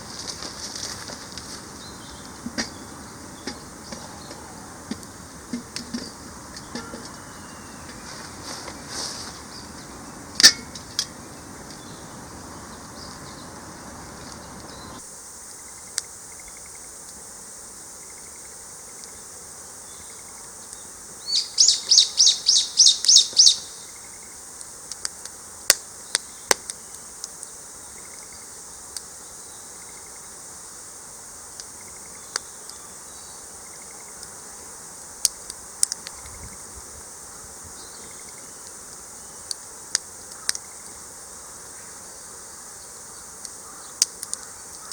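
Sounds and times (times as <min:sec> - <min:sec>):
insect drone: 0:00.0 - 0:44.9
bird song quick repeated notes: 0:21.3 - 0:23.8.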